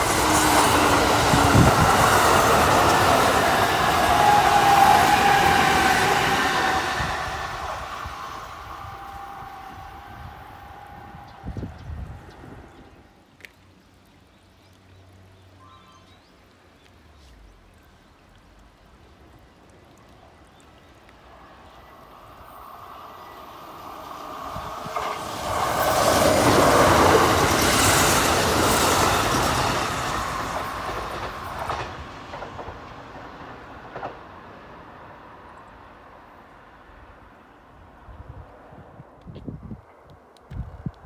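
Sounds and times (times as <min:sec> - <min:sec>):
electric train rumbling past: 0:00.0 - 0:13.2, 0:21.2 - 0:40.1.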